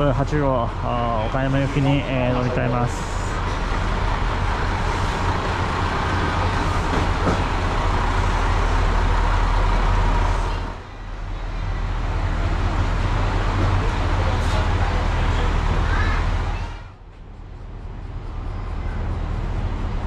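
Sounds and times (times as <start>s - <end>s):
diesel railcar engine idling: 0.0s - 20.0s.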